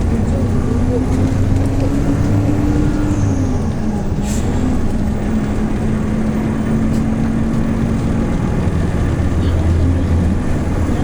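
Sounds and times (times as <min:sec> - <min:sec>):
bus engine running: 0:00.0 - 0:11.0.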